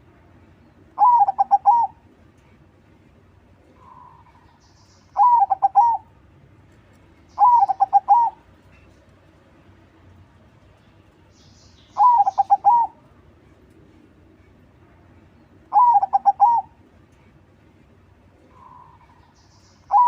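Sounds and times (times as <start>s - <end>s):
dove cooing: 1.0s - 2.0s, 5.2s - 6.1s, 7.4s - 8.9s, 12.0s - 13.1s, 15.7s - 16.8s.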